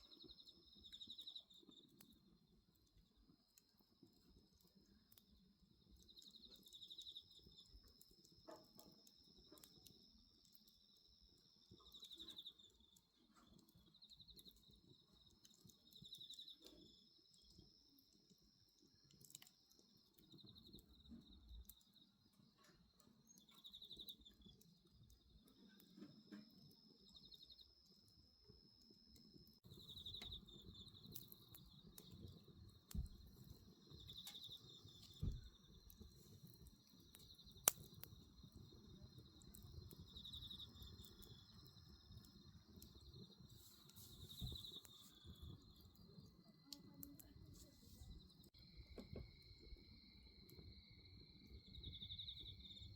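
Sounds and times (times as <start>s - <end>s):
wood bonfire crackling: 0.0s - 52.9s
crickets chirping: 3.2s - 52.9s
sharp pops from fire: 3.6s - 10.8s, 29.2s - 49.4s.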